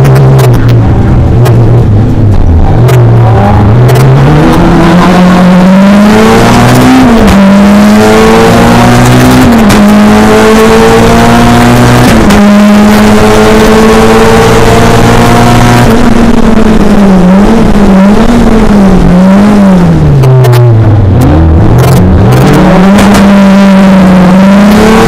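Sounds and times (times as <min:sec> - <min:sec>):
race car engine accelerating: 0:00.0 - 0:25.0.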